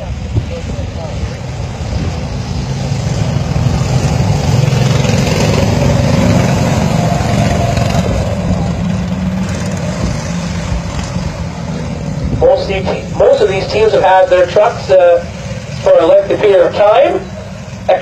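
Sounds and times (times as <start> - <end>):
small race truck engines passing: 0.0 - 18.0.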